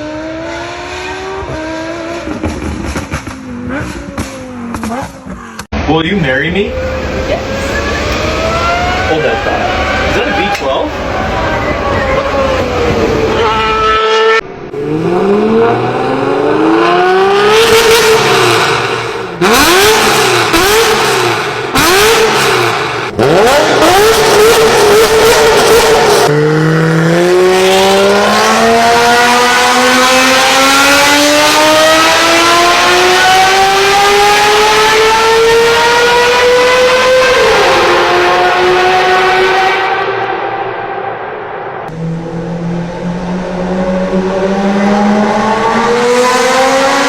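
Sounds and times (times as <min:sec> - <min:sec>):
sports car engine revving: 0:12.2 - 0:47.0.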